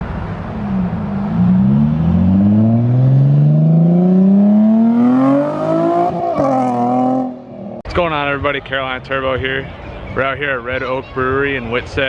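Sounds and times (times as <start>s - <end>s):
car engine accelerating: 0.0s - 7.8s.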